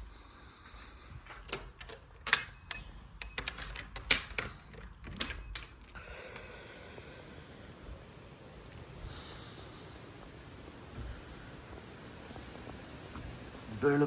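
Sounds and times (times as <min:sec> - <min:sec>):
sharp clicks and knocks: 0:01.2 - 0:06.0.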